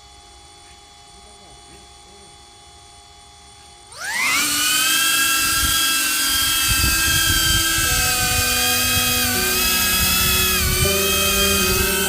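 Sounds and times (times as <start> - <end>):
drone propellers whining: 3.9 - 12.0.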